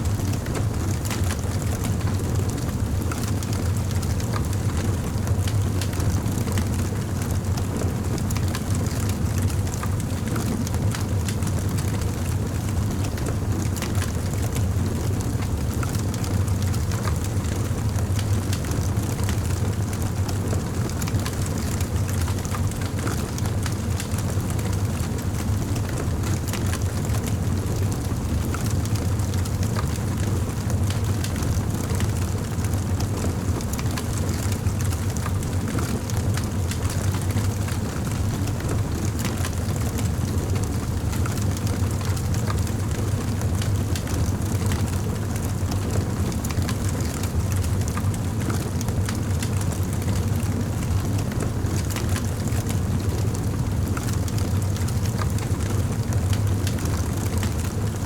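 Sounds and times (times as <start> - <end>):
campfire rumble: 0.1 - 58.0
fire crackling and popping: 28.9 - 38.0, 38.6 - 50.6, 51.4 - 57.7.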